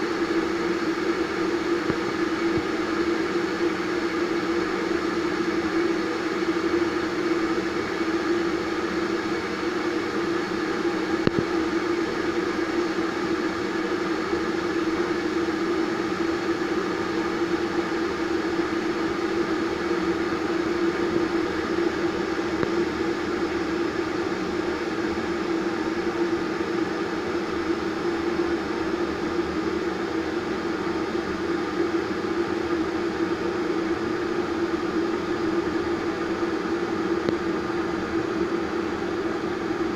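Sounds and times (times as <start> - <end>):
electric kettle heating water: 0.0 - 39.9
faint tick: 11.2 - 11.5.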